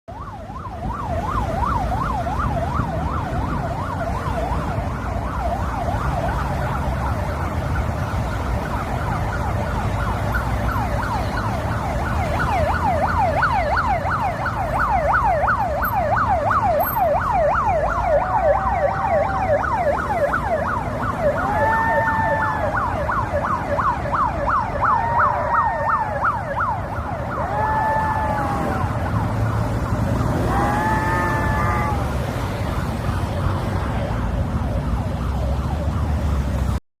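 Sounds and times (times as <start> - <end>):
ambulance siren yelping: 0.1 - 36.8.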